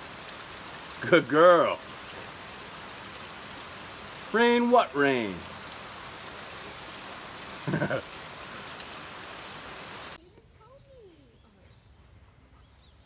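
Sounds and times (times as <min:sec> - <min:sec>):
heavy rain falling: 0:00.0 - 0:10.2
faint bird chirps: 0:10.2 - 0:13.0.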